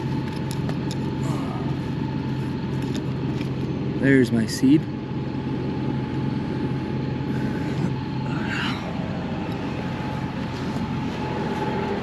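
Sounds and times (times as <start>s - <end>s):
high-pitched whine: 0.0s - 12.0s
tractor engine droning: 0.0s - 12.0s.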